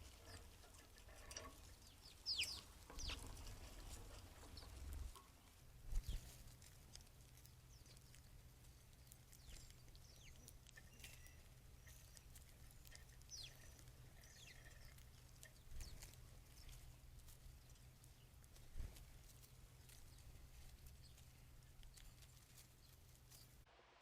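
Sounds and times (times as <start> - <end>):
low steady hum: 0.0 - 24.0
bird chirps: 1.8 - 3.3, 8.9 - 16.8.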